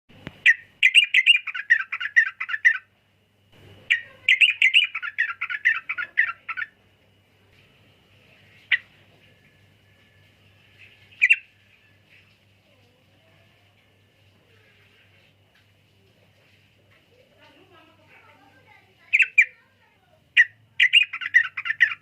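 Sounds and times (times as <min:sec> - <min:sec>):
sharp bird notes: 0:00.4 - 0:02.8, 0:03.9 - 0:06.7, 0:10.8 - 0:11.5, 0:20.4 - 0:22.0
bird singing bubbling chatter: 0:00.4 - 0:02.9, 0:03.8 - 0:06.8, 0:10.7 - 0:12.5, 0:19.0 - 0:19.8, 0:20.4 - 0:22.0.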